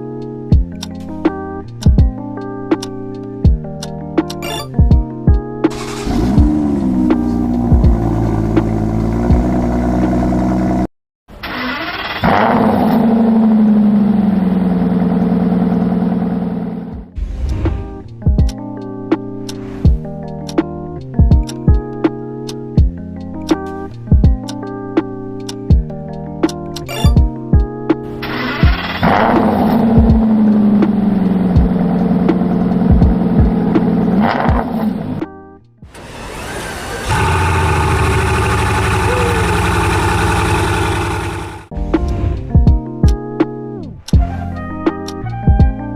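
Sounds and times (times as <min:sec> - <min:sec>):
deep bass music beat: 0:00.0 - 0:10.8, 0:16.9 - 0:35.4, 0:38.8 - 0:40.7, 0:41.5 - 0:45.9
car starter cranking: 0:05.7 - 0:09.7, 0:11.3 - 0:16.6, 0:28.2 - 0:33.3, 0:35.9 - 0:41.7
other engine idling: 0:05.7 - 0:10.9, 0:28.2 - 0:35.2, 0:35.9 - 0:42.5
car engine revving and idling: 0:05.7 - 0:18.2, 0:28.0 - 0:35.3, 0:35.9 - 0:42.6.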